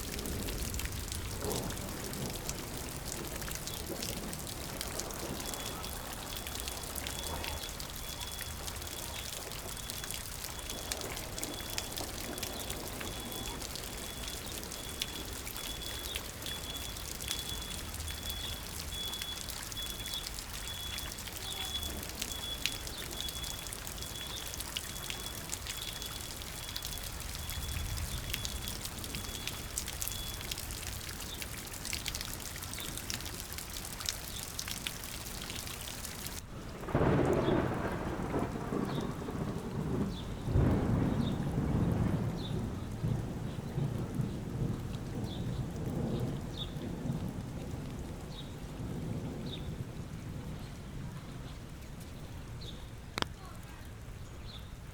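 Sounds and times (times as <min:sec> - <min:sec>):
water trickling and pouring: 0:00.0 - 0:37.6
steady rain: 0:00.0 - 0:54.9.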